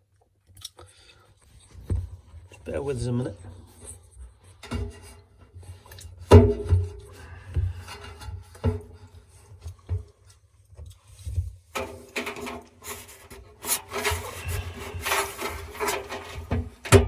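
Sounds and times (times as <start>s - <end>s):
paddle scraping in drum: 11.2s - 17.0s.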